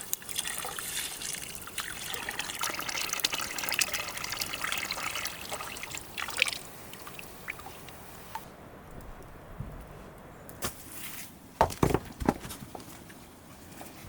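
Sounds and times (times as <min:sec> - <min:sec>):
liquid trickling and splashing: 0:00.0 - 0:08.5.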